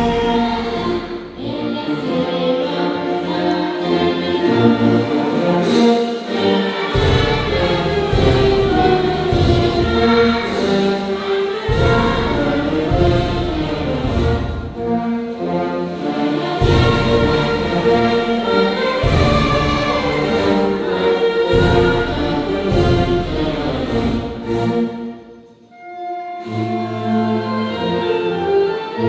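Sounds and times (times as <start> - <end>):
choir singing: 0.0 - 25.6, 26.4 - 29.0
orchestral accompaniment: 0.0 - 29.0.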